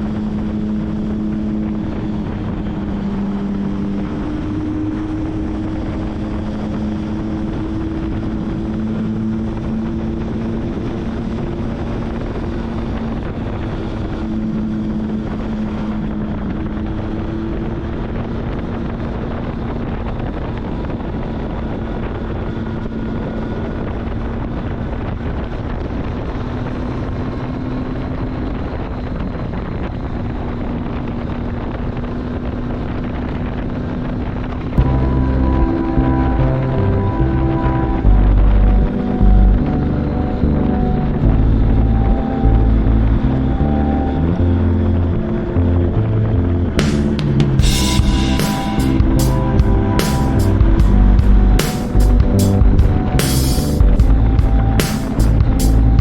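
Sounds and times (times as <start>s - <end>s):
wind over microphone: 0.0s - 56.0s
motorcycle engine running: 44.3s - 56.0s.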